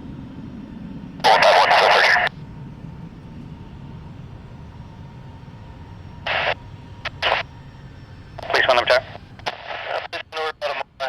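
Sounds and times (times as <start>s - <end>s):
jet engines rumbling: 0.0s - 11.0s
radio static bursts: 1.2s - 2.3s, 6.3s - 7.5s, 8.4s - 11.0s.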